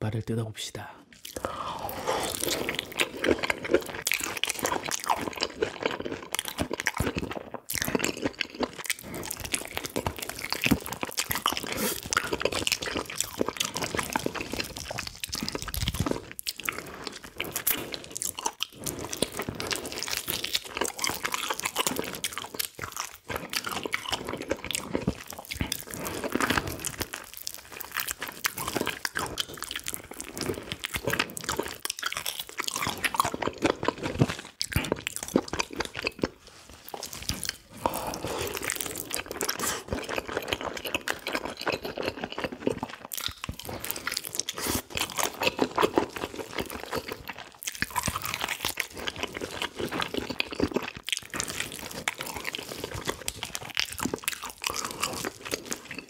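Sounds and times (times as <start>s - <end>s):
crunchy sticky chewing: 1.1s - 56.0s.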